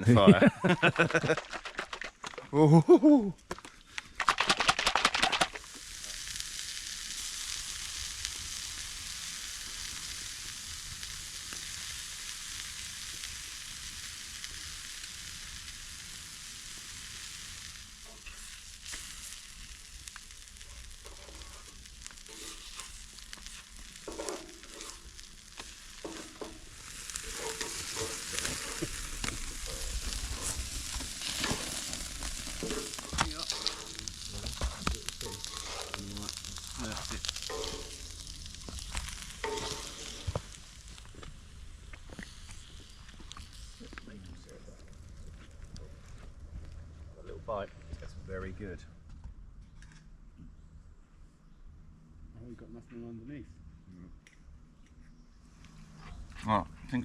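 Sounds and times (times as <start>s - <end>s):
food sizzling in a pan: 0.5s - 1.9s, 4.5s - 46.1s.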